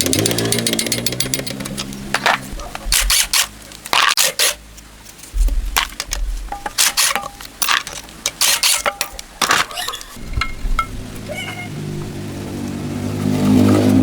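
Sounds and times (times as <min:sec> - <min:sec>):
scraping on metal: 0:06.5 - 0:12.2.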